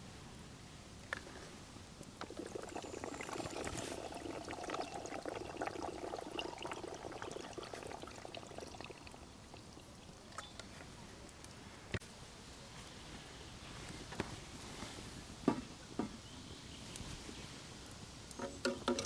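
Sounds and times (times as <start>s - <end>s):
liquid pouring into vessel: 2.2s - 10.5s.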